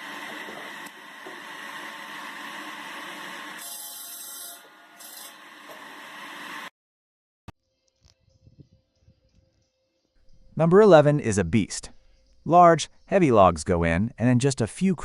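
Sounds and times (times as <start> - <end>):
firewood machine rushing noise: 0.0 - 6.7.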